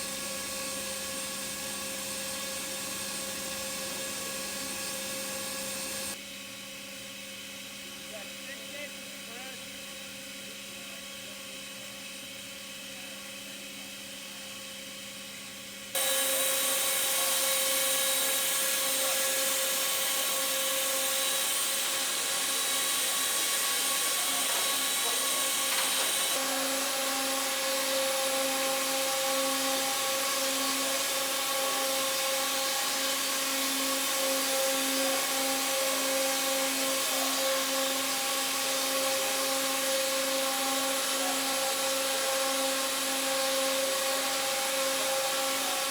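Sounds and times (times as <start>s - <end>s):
welding machinery whine: 0.0s - 6.2s, 16.0s - 45.9s.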